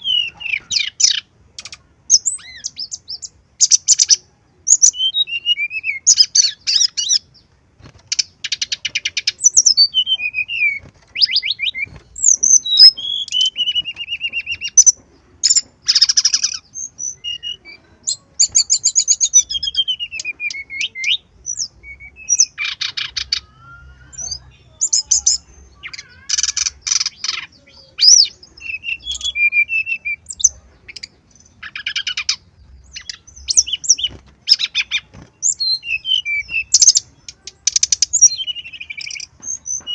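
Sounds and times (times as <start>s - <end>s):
bird singing whistled notes: 0.0s - 7.4s, 8.1s - 39.9s.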